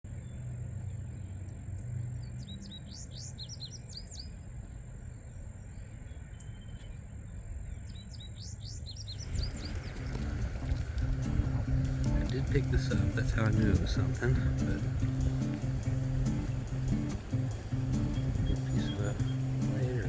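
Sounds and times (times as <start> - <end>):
songbird chirping: 0.1 - 20.0
low outdoor rumble: 9.2 - 20.0.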